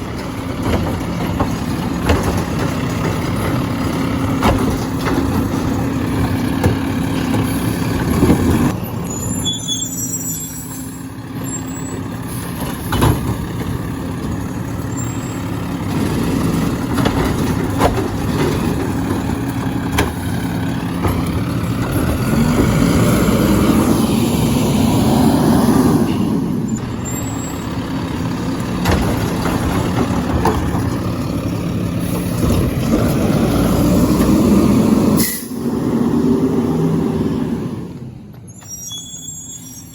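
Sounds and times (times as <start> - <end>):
garbage truck engine running: 0.0 - 39.9
sharp knocks and clanks: 0.1 - 8.7, 12.0 - 14.5, 15.8 - 23.0, 28.1 - 31.6.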